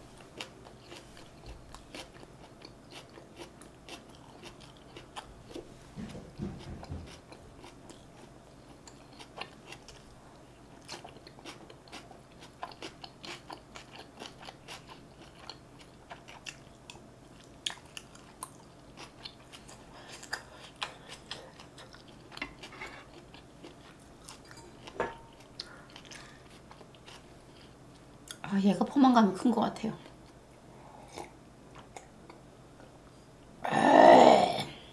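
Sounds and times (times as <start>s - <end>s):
chewing and wet mouth sounds: 0.2s - 27.3s.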